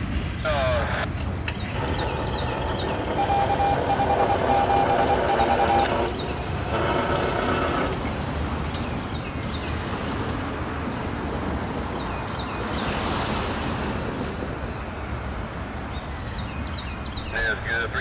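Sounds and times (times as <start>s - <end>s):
on-off beeping tone: 1.8s - 6.2s.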